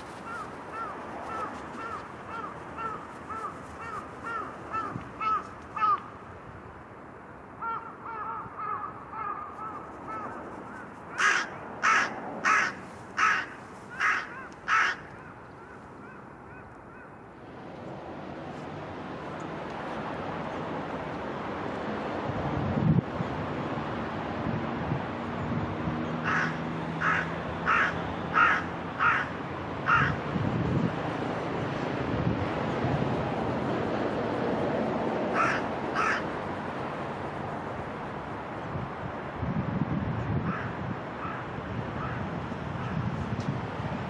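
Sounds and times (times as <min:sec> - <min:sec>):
wind: 0:00.0 - 0:44.0
crows cawing: 0:00.2 - 0:06.1, 0:07.6 - 0:17.2, 0:26.2 - 0:30.2, 0:35.3 - 0:36.3, 0:40.5 - 0:42.2.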